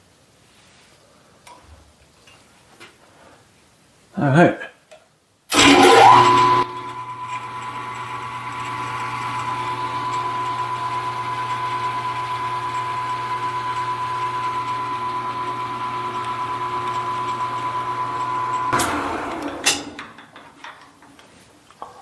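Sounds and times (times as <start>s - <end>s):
electric motor whine and hum: 5.5s - 20.0s.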